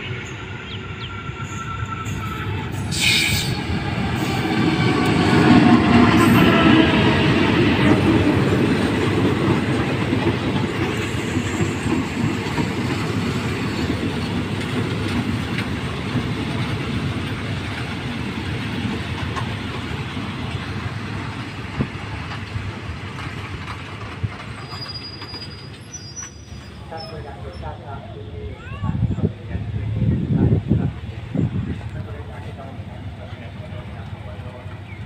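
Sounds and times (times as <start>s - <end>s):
train wheels rumbling and clacking: 0.0s - 28.0s.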